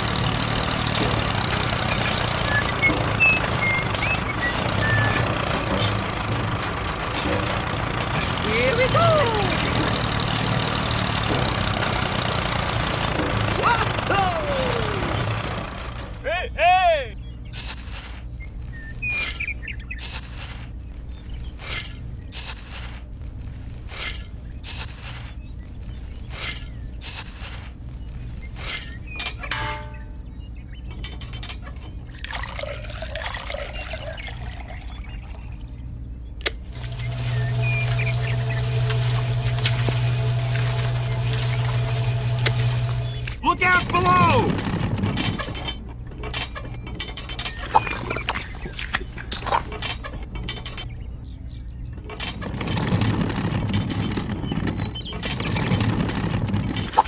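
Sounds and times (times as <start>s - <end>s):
gritty scraping: 0.0s - 14.1s, 17.5s - 30.0s, 36.5s - 48.2s, 52.1s - 57.0s
small motor humming: 0.0s - 14.1s, 36.5s - 43.4s
low steady hum: 29.4s - 46.3s
liquid trickling: 32.1s - 35.6s
gritty rushing noise: 36.6s - 45.5s.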